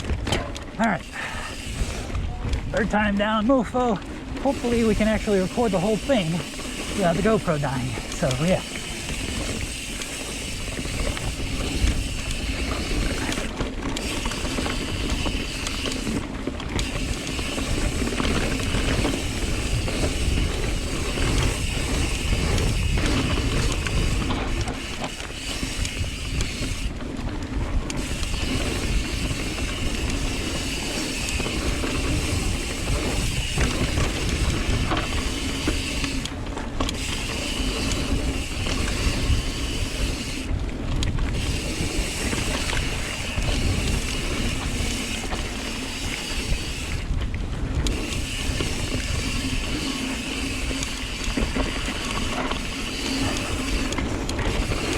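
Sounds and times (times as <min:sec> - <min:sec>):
bike rattling over ground: 0:00.0 - 0:54.9
wind rushing on microphone: 0:00.0 - 0:54.9.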